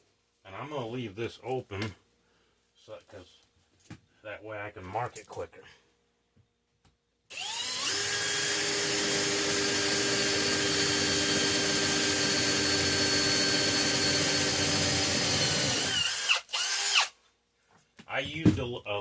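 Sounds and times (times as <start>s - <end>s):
electric drill drilling metal: 7.3s - 17.1s.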